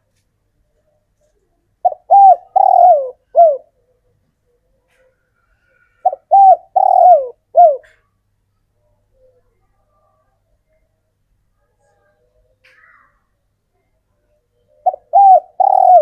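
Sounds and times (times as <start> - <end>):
dove cooing: 1.8 - 3.8, 6.0 - 8.0, 14.8 - 16.0.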